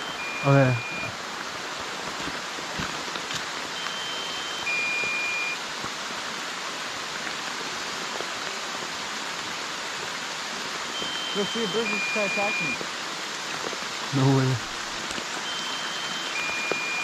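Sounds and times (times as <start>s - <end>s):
two-tone electronic alert beep: 0.0s - 1.2s, 3.8s - 5.6s, 11.0s - 12.8s, 15.4s - 17.0s
rushing hiss of water: 0.0s - 17.0s.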